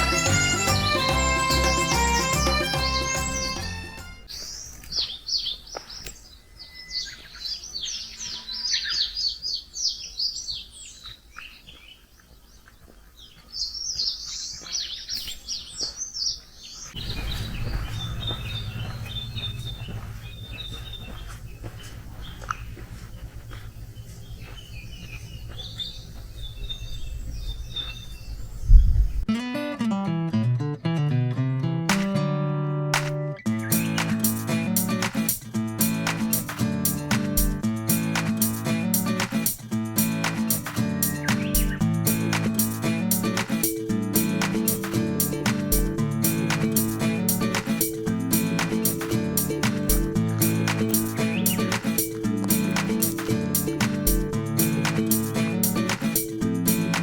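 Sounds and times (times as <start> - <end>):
songbirds warbling: 4.3 - 29.2, 33.4 - 57.0
repeated bird chirps: 16.8 - 29.2, 33.4 - 57.0
steady low rumble: 17.0 - 29.3.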